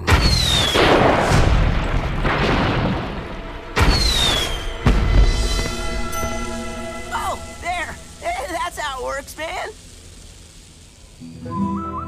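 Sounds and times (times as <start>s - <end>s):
flare gun bang with whistle: 0.0s - 1.6s, 3.8s - 6.3s
fizzing hiss: 3.8s - 11.5s.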